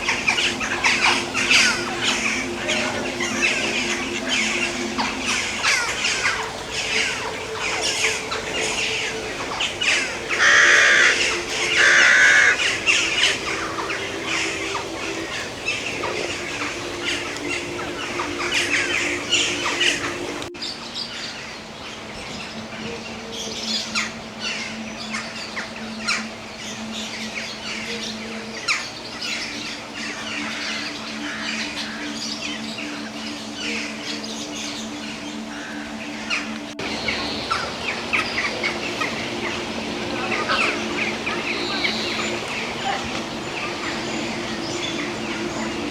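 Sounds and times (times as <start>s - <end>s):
harsh bird squawks: 0.0s - 20.4s
steady low hum: 0.0s - 20.6s, 32.8s - 45.9s
birdsong and chirping: 0.0s - 45.9s.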